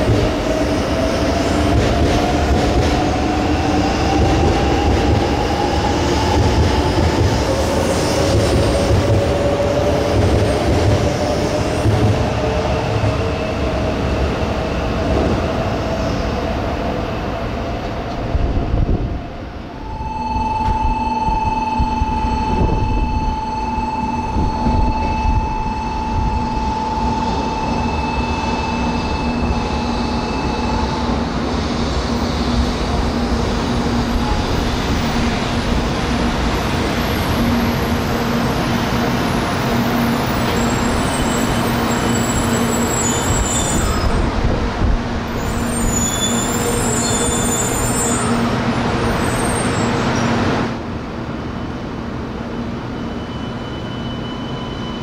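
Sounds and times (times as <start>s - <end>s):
high whine: 19.8s - 30.5s.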